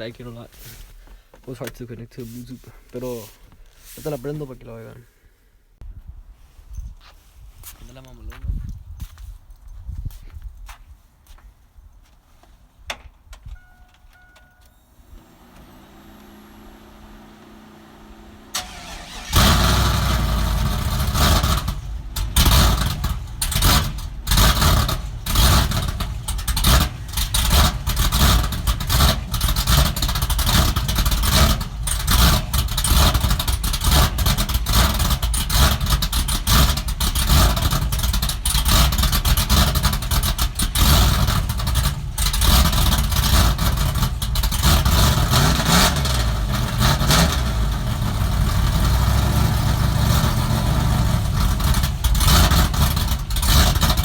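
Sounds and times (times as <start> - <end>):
truck engine cranking and idling: 13.0 - 54.0
short beeps: 13.5 - 15.0.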